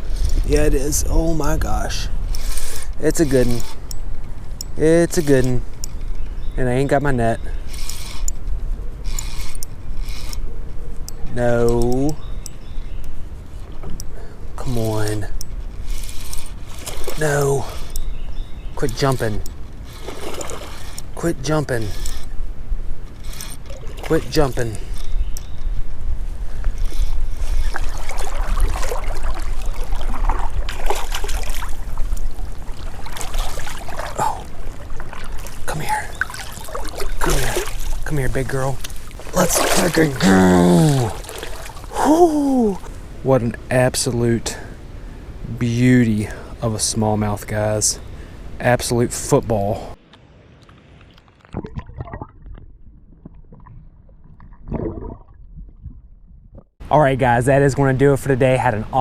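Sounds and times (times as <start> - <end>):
river water sloshing and gurgling: 15.8 - 17.9, 19.8 - 21.2, 23.2 - 24.3, 26.8 - 42.1
small splashes and knocks: 20.0 - 20.9, 27.7 - 38.1, 38.8 - 40.2, 41.0 - 41.9.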